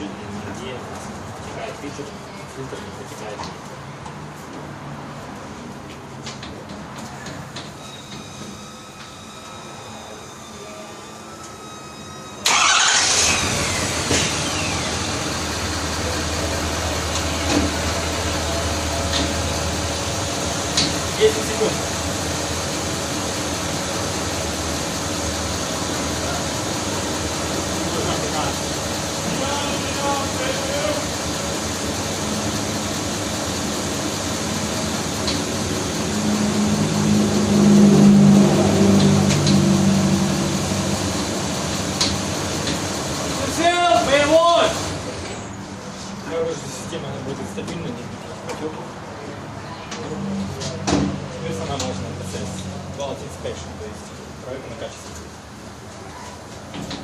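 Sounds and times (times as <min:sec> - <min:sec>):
car engine starting and idling: 0:11.6 - 0:47.7.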